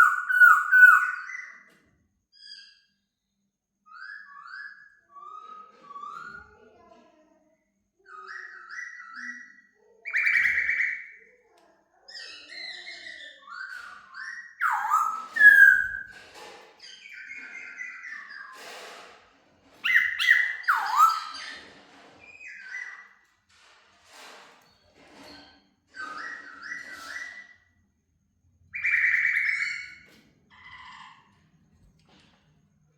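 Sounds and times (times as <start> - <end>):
bird singing whistled phrases: 0.0 - 1.5, 13.5 - 16.1, 19.8 - 21.4, 28.8 - 30.0.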